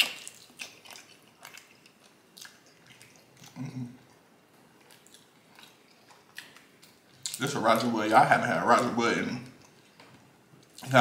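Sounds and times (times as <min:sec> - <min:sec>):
close-miked chewing: 0:00.0 - 0:07.8.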